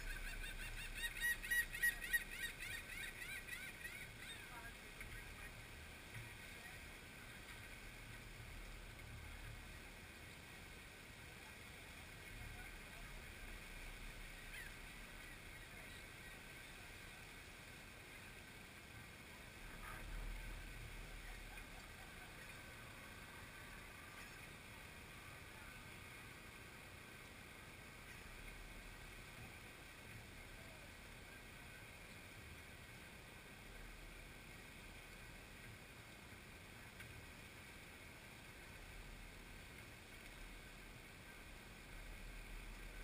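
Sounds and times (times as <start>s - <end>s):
low rumble on microphone: 0.0s - 2.3s
bird calls: 0.0s - 5.6s, 14.2s - 16.4s.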